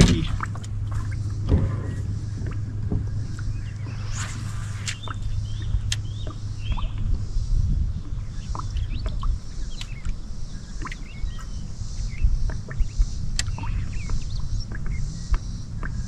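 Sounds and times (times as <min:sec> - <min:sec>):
birds chirping: 0:00.0 - 0:16.0
steady low rumble: 0:00.0 - 0:16.0
high hiss: 0:03.8 - 0:05.4.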